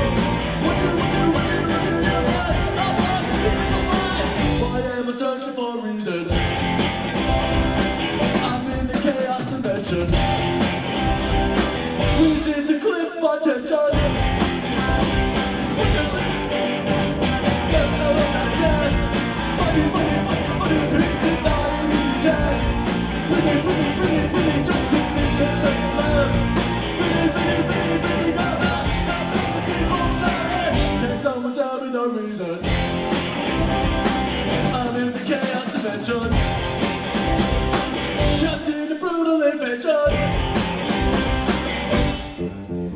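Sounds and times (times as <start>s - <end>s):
live rock band playing: 0.0s - 4.9s, 6.3s - 12.7s, 13.9s - 31.3s, 32.6s - 38.7s, 40.1s - 42.9s
electric guitar: 0.0s - 5.0s, 6.3s - 12.7s, 13.9s - 31.4s, 32.6s - 38.8s, 40.0s - 42.9s
person singing: 0.0s - 6.4s, 12.0s - 16.6s, 17.7s - 32.9s.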